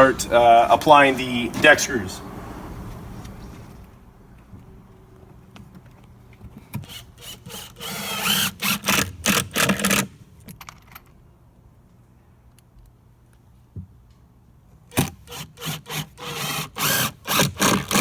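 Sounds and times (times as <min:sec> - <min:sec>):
power drill driving screws into wood: 0:06.8 - 0:10.1, 0:14.9 - 0:18.0.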